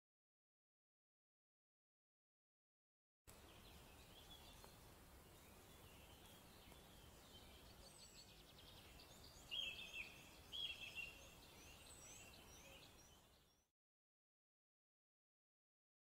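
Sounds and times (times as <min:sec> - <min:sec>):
distant birdsong: 0:03.3 - 0:13.7
loud bird phrases: 0:05.4 - 0:13.4.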